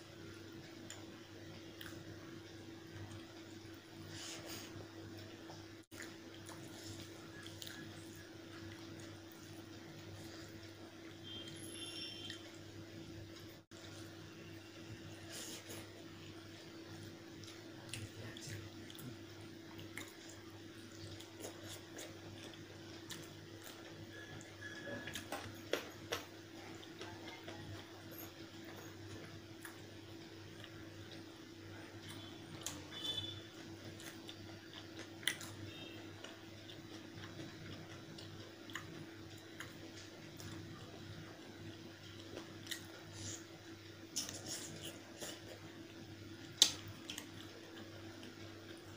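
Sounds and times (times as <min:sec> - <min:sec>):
faint hum: 0:00.0 - 0:48.9
wet chewing and smacking: 0:05.9 - 0:10.4, 0:17.3 - 0:25.8, 0:33.8 - 0:41.0, 0:46.4 - 0:48.4.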